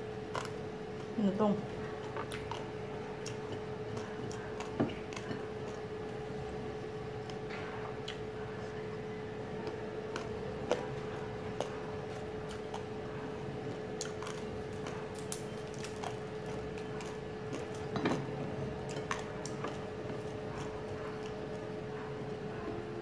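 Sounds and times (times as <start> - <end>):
crunchy chewing: 0.0 - 23.0
steady hum: 0.0 - 23.0.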